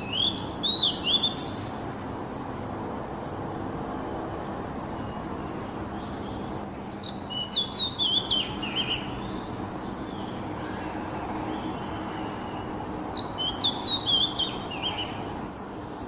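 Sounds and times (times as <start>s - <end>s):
bird whistling song: 0.0s - 2.0s, 7.0s - 10.8s, 11.5s - 15.3s
background hiss and rumble: 0.0s - 16.0s.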